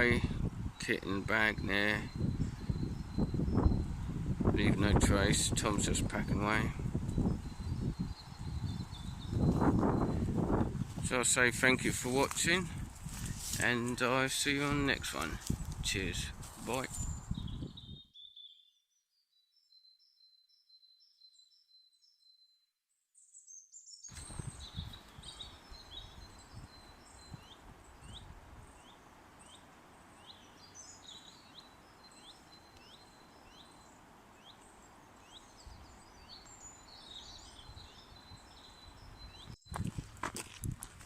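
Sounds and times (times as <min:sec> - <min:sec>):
bird chirping: 0:00.0 - 0:11.2, 0:16.7 - 0:40.0
birdsong: 0:00.0 - 0:22.6, 0:23.2 - 0:40.6.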